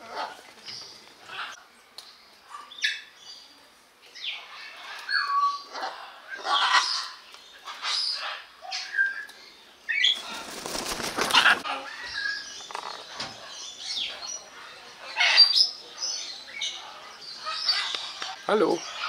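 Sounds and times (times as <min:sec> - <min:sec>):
birds squawking and chirping: 0:00.0 - 0:01.7, 0:04.1 - 0:19.0
loud wing flapping: 0:10.2 - 0:11.7.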